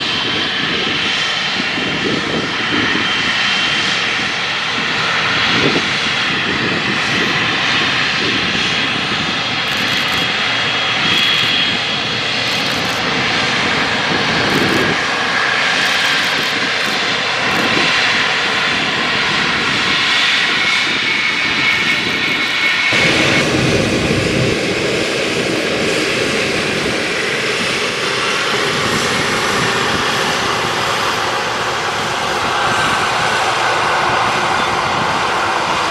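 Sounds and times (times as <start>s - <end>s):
jet engines hissing and whining: 0.0s - 35.9s
deep rumble: 15.8s - 35.8s.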